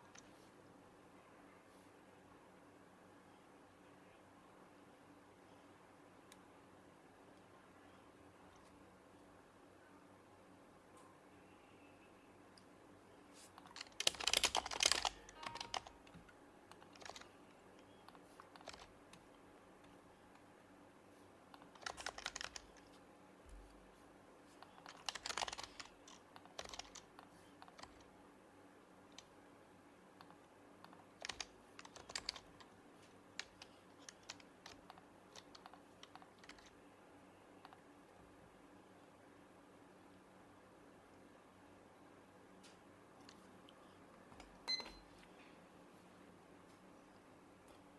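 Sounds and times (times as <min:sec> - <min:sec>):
keyboard typing: 0:13.6 - 0:20.5, 0:21.5 - 0:23.0, 0:24.6 - 0:28.1, 0:30.2 - 0:36.8.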